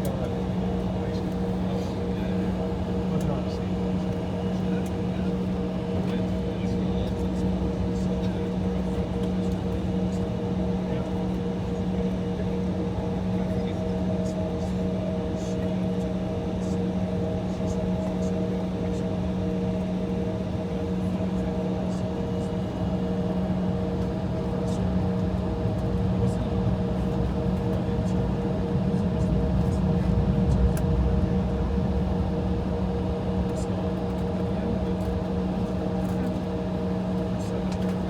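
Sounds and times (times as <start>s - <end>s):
air conditioning: 0.0s - 38.0s
aircraft cabin hum: 0.0s - 38.0s
idling jet engines: 0.0s - 38.0s
low rumble: 28.2s - 33.6s.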